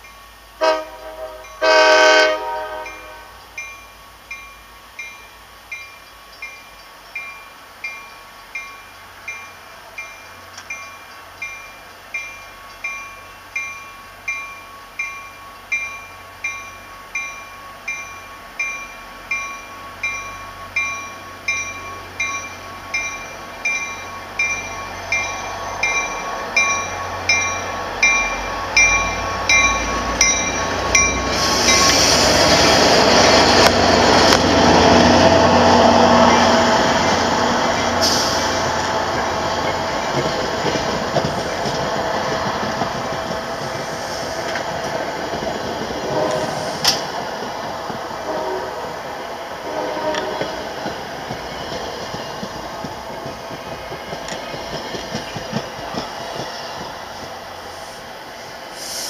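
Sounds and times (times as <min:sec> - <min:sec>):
train bell ringing: 0:00.0 - 0:43.8
train low rumble: 0:00.0 - 0:59.0
train rushing past: 0:00.4 - 0:59.0.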